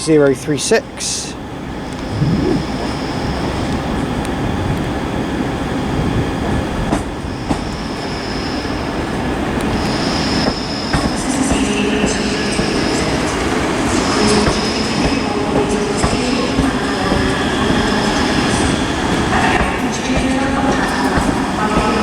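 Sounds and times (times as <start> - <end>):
low whining tones: 2.0 - 3.0
train wheels squealing: 9.7 - 19.6.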